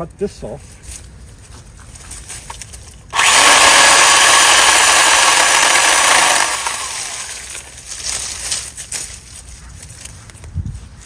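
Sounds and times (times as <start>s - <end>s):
cordless saw cutting wood: 3.1s - 7.7s.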